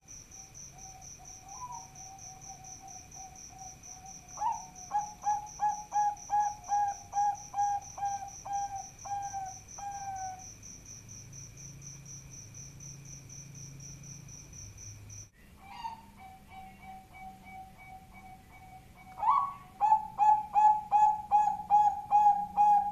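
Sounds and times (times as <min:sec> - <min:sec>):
dove cooing: 0:00.8 - 0:10.4, 0:15.6 - 0:22.9.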